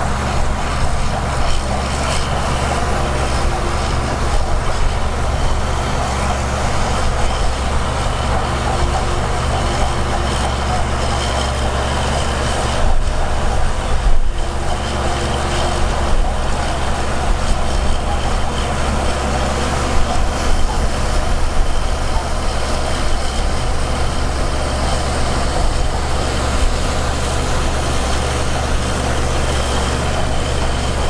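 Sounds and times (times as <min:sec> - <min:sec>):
heavy machinery engine clattering: 0:00.0 - 0:31.0.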